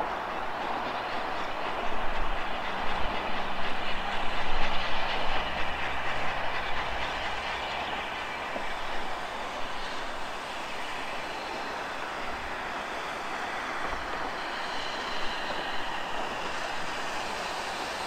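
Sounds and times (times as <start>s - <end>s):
train rushing past on rails: 0.0s - 18.0s.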